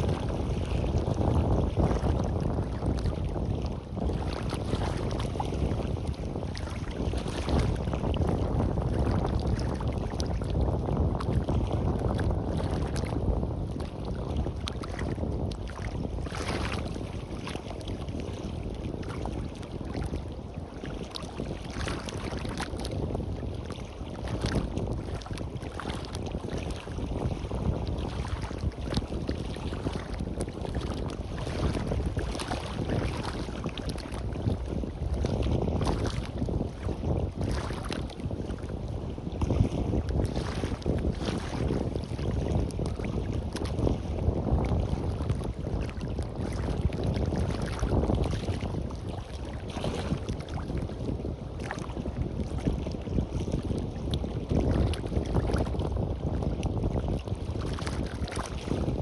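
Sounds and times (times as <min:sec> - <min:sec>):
surf washing on beach: 0:00.0 - 0:10.6
wind buffeting microphone: 0:00.0 - 0:59.0.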